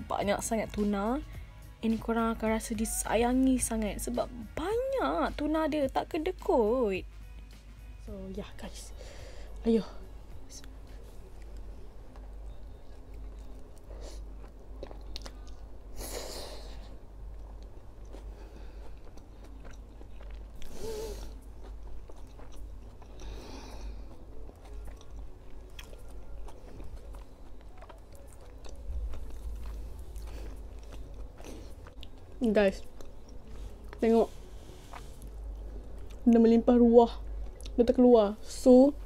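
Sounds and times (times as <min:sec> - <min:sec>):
person chewing a sandwich: 0:10.7 - 0:36.3, 0:37.2 - 0:37.8.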